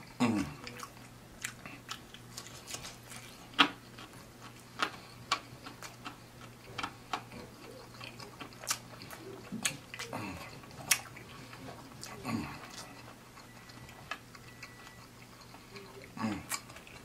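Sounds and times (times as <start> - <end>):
close chewing with mouth clicks: 0.0 - 17.0
lip smacks: 0.6 - 13.1
faint throat murmur: 9.0 - 10.8, 11.5 - 13.0, 15.8 - 16.6.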